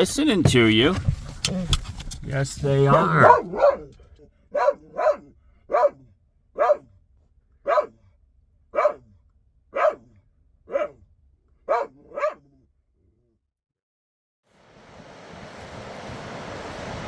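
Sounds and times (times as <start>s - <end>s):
dog barking: 2.9s - 6.9s, 7.6s - 8.0s, 8.7s - 9.1s, 9.7s - 10.1s, 10.7s - 11.0s, 11.6s - 12.5s.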